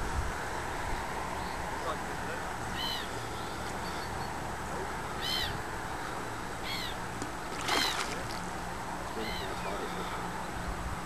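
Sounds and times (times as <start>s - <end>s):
fish splashing at surface: 7.5s - 8.5s.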